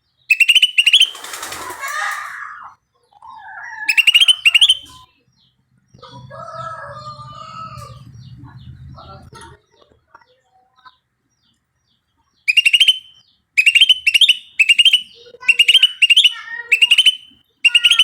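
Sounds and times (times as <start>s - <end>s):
bird chattering loudly: 0.3s - 2.4s, 3.8s - 5.1s, 12.5s - 18.0s.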